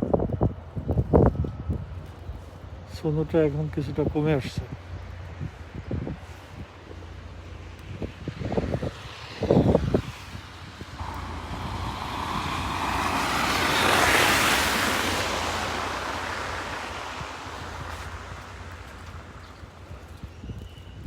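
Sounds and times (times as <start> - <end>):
tyre hiss on wet street: 4.9 - 20.7
low rumble: 11.0 - 19.8.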